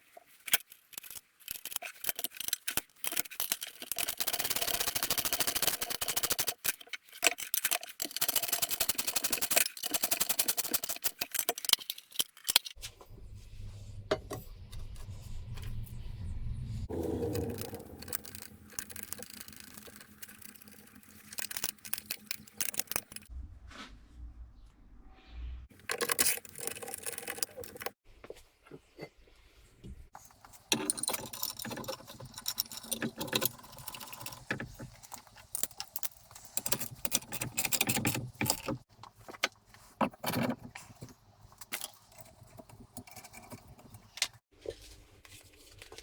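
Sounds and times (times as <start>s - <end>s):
metal parts and tools clinking: 0.0s - 12.8s, 16.9s - 23.3s, 25.7s - 28.0s, 30.2s - 44.4s.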